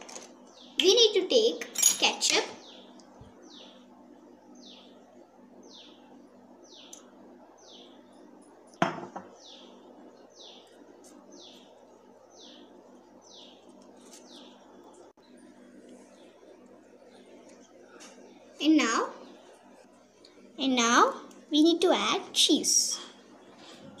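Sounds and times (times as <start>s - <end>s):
bird chirping: 2.6s - 3.9s, 4.5s - 5.0s, 5.6s - 8.2s, 9.1s - 15.0s.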